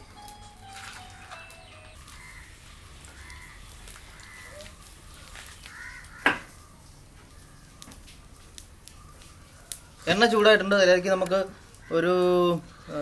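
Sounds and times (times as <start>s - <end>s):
crows cawing: 0.8s - 6.6s, 11.6s - 13.0s.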